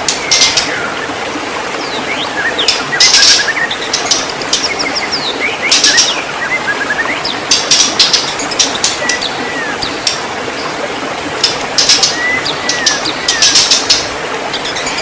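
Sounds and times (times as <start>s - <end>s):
running water hiss: 0.0s - 15.0s
bird singing whistled notes: 2.0s - 10.2s, 11.4s - 15.0s.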